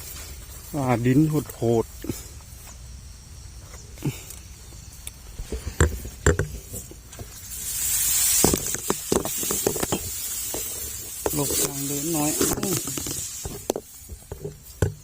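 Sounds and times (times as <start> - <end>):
footsteps in a paddy: 0.0 - 2.9
rice plants rustling: 0.0 - 3.0, 3.6 - 15.0.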